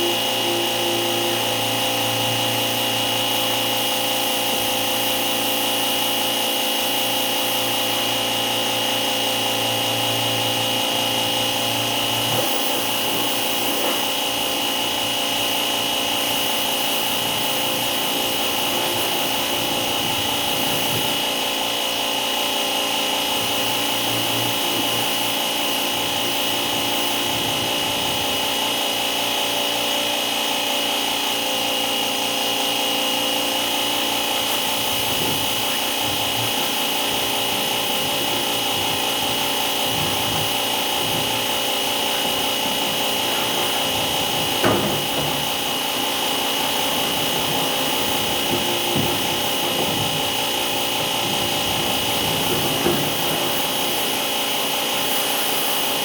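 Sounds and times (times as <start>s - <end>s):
power tool motor whining: 33.4s - 56.0s.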